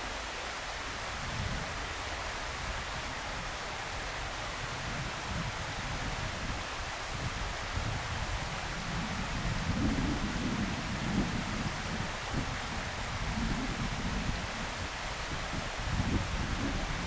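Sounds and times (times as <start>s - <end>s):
wind gusting against microphone: 4.5s - 17.0s.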